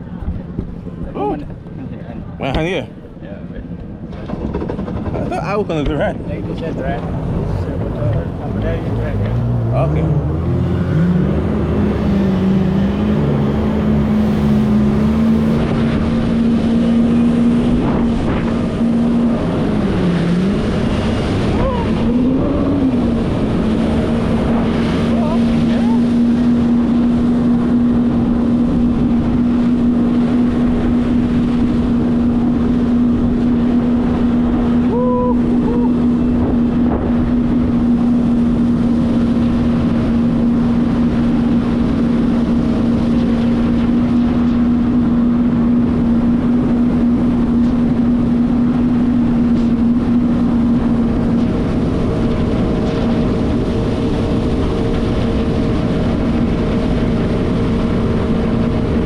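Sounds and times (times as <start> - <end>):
jet ski engine droning: 0.0 - 59.0
wind on microphone: 0.0 - 59.0.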